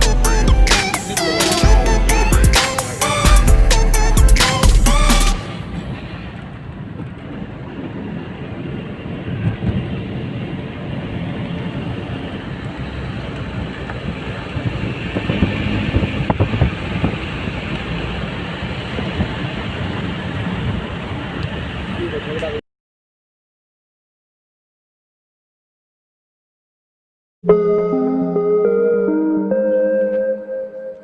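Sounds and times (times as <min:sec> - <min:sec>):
road noise: 0:00.0 - 0:22.6
vehicle engine rumble: 0:00.0 - 0:22.6.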